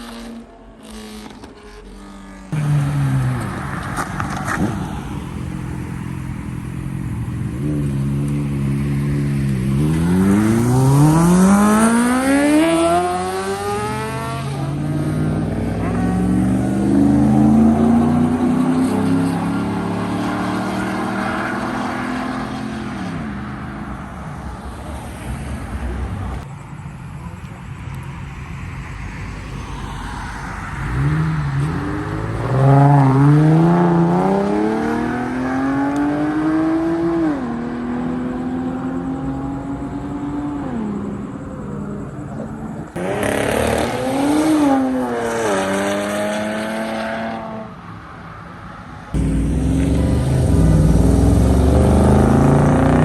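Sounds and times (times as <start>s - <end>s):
car engine revving: 0.0s - 23.7s, 28.5s - 47.7s, 49.2s - 53.0s
vehicle engine running: 2.6s - 10.5s, 49.2s - 53.0s.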